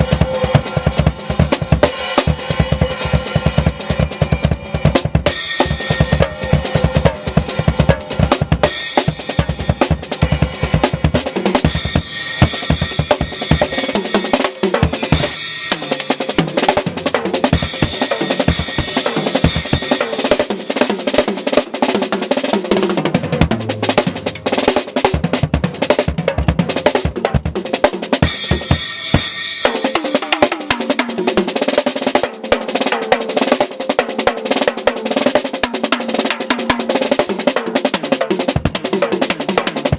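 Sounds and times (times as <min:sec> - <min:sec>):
cymbals: 0:00.0 - 0:27.0, 0:28.2 - 0:31.9
bass drum: 0:23.1 - 0:27.6.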